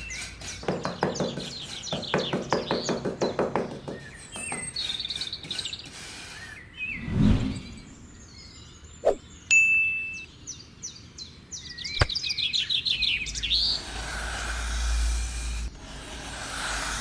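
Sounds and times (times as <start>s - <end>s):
birds chirping: 0.0s - 17.0s
short low whoosh: 6.9s - 8.2s.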